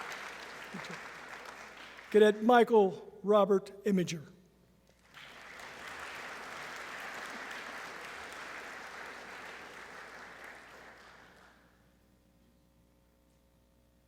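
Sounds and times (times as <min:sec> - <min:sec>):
audience applauding: 0:00.0 - 0:02.4, 0:05.0 - 0:11.8.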